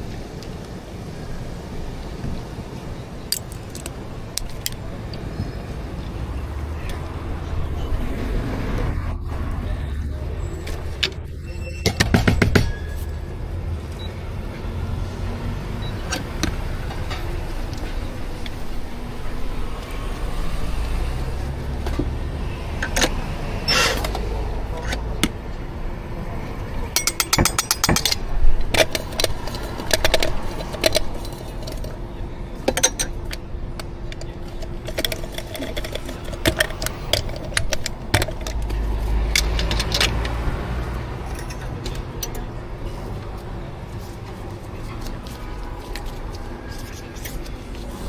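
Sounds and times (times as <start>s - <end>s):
low rumble of traffic: 0.0s - 48.0s
coffee equipment clinking: 3.2s - 5.3s, 27.0s - 32.0s, 32.7s - 40.5s.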